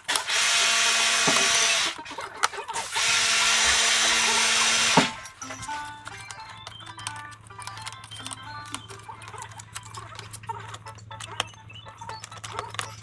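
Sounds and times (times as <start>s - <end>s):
electric drill whining: 0.0s - 6.0s.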